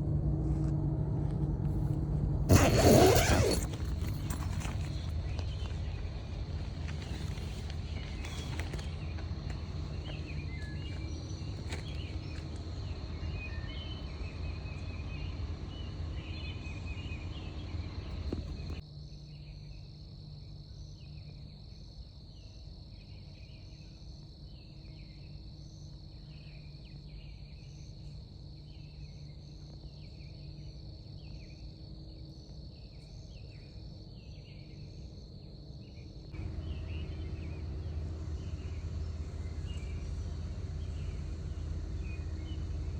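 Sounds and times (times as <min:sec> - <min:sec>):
low rumble: 0:00.0 - 0:02.7, 0:36.4 - 0:42.9
insects trilling: 0:02.5 - 0:18.8, 0:36.4 - 0:42.9.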